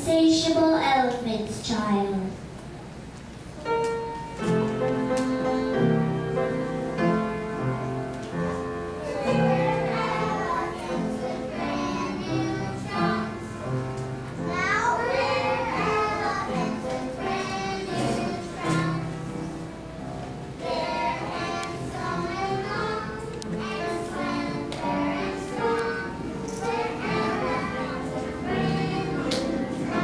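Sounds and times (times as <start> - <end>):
instrumental accompaniment: 3.6 - 30.0
children singing: 9.0 - 19.7, 20.5 - 30.0.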